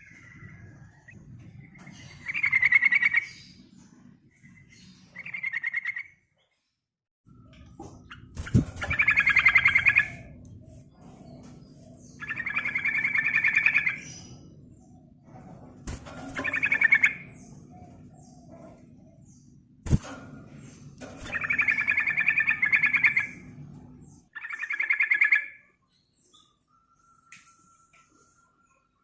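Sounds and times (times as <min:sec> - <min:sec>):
bulbul rattling song: 0:04.5 - 0:06.1, 0:07.5 - 0:26.6.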